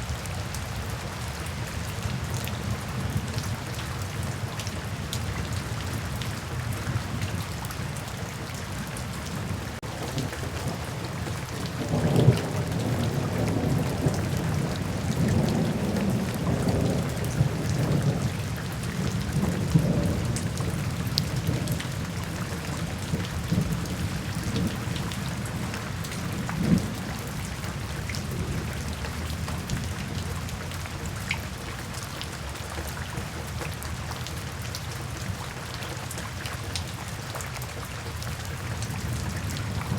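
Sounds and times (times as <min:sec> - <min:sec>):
steady rain: 0:00.0 - 0:39.9
thunder rumbling: 0:09.4 - 0:30.6.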